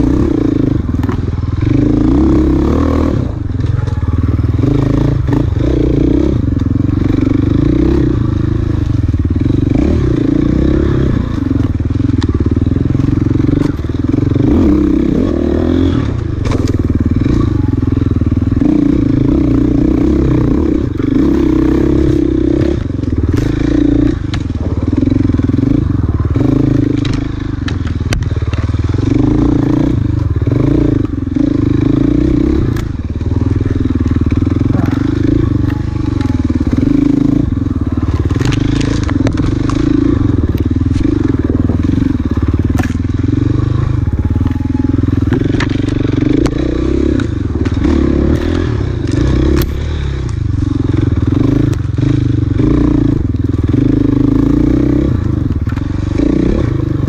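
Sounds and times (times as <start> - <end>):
dirt bike engine revving: 0.0 - 57.0
clatter and knocks from bike: 16.4 - 17.0, 42.6 - 43.1.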